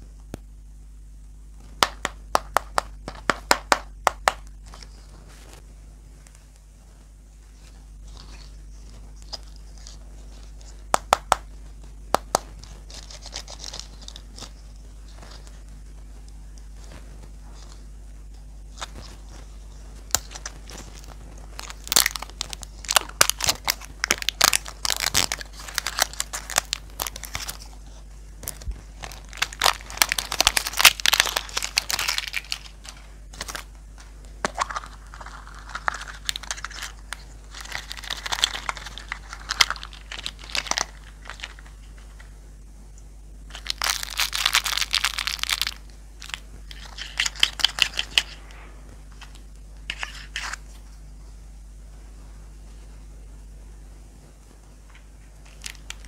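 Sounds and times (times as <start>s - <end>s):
plastic wrapper crinkling: 7.6s - 15.7s, 18.7s - 42.3s, 43.5s - 48.4s, 49.0s - 50.8s, 55.4s - 56.0s.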